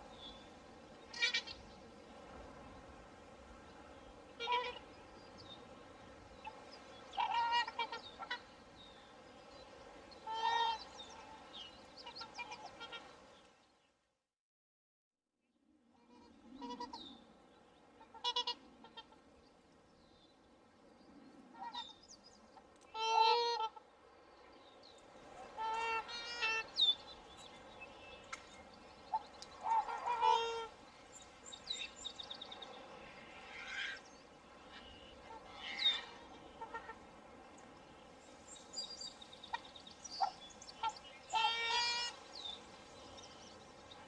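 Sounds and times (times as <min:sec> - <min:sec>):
swans honking: 0:01.1 - 0:01.6, 0:04.3 - 0:05.0, 0:06.4 - 0:08.6, 0:10.2 - 0:13.1, 0:16.1 - 0:17.0, 0:18.0 - 0:19.2, 0:22.9 - 0:23.8, 0:25.3 - 0:27.0, 0:29.1 - 0:30.8, 0:34.6 - 0:37.2, 0:39.5 - 0:42.3
small birds chirping: 0:37.6 - 0:41.5.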